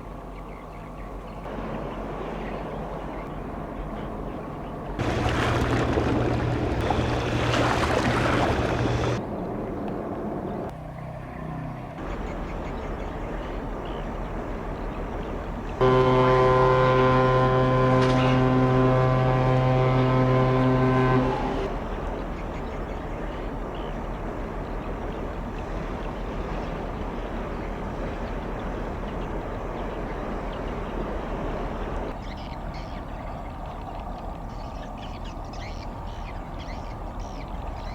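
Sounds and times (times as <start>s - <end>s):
ship engine hum: 1.2s - 37.9s
water wash: 5.0s - 10.7s.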